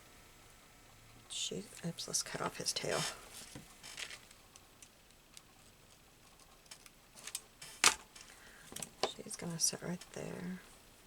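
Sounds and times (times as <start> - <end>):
paper rustling: 2.9 - 4.4.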